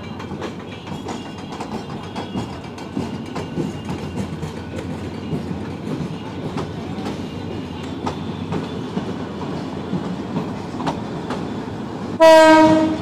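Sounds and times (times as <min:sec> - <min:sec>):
train wheels rumbling: 0:00.0 - 0:13.0
wheels clicking over rail joints: 0:00.0 - 0:13.0.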